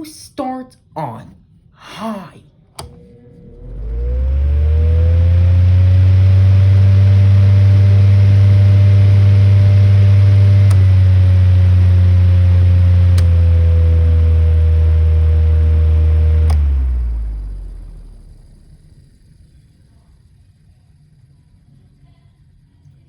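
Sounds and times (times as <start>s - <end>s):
box fan humming: 2.8s - 20.0s.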